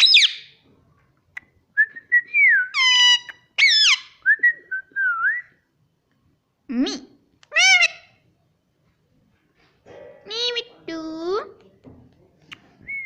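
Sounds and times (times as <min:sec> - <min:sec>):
shrill parrot calls: 0:00.0 - 0:00.6, 0:02.7 - 0:04.2, 0:07.5 - 0:08.2.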